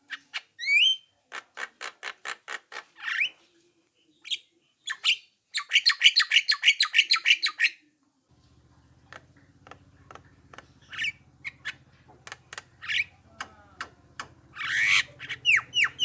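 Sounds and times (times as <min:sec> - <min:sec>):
low steady hum: 0:08.3 - 0:16.0
clicks and squawks: 0:09.1 - 0:16.0
bird harsh chattering calls: 0:09.6 - 0:16.0.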